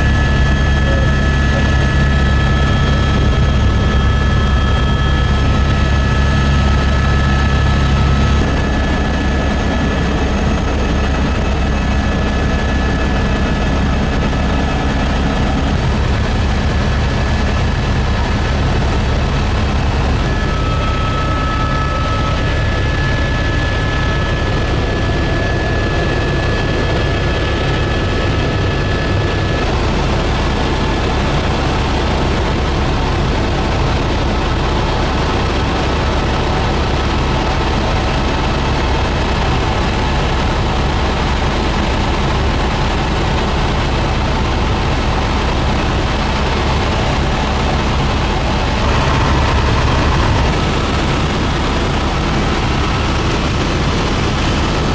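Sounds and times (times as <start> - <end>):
thin high whine: 0.0 - 29.6
helicopter engine and rotor drone: 0.0 - 54.9.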